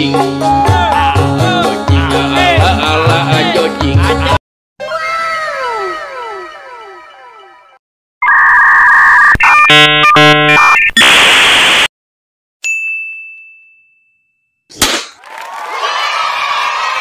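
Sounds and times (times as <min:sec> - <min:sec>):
electronic buzzer tones: 0:08.2 - 0:11.9
bright ding: 0:12.6 - 0:14.5
crowd cheering: 0:15.2 - 0:17.0.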